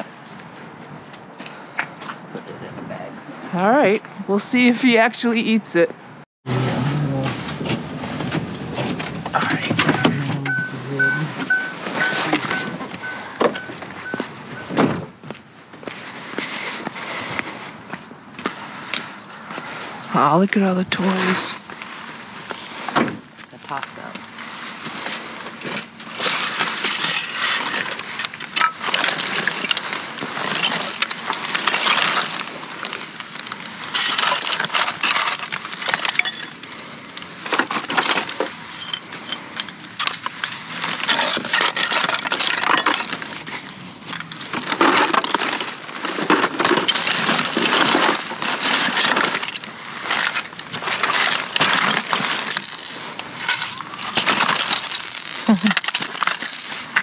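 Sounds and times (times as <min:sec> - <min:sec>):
plastic toys clattering: 0:08.9 - 0:14.2, 0:23.8 - 0:57.0.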